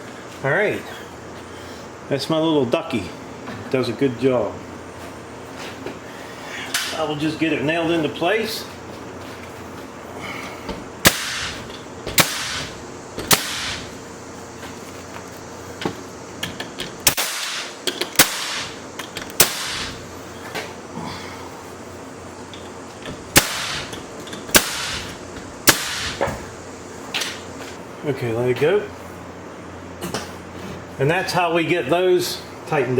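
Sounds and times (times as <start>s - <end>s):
nail gun shots with hiss: 11.0s - 14.0s, 17.0s - 18.8s, 19.4s - 20.1s, 23.3s - 26.5s.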